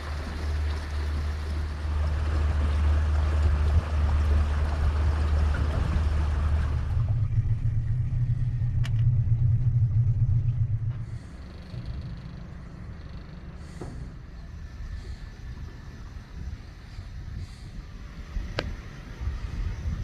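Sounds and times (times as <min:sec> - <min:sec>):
rushing water: 0:00.0 - 0:11.8
boat motor rumbling: 0:00.0 - 0:20.0
wind noise: 0:14.7 - 0:20.0.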